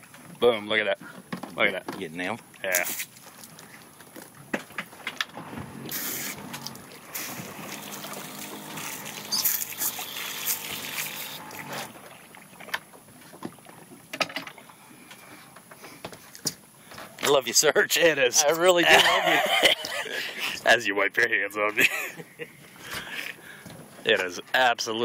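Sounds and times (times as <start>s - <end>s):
buzzing hum with pitched tone: 5.4s - 12.4s.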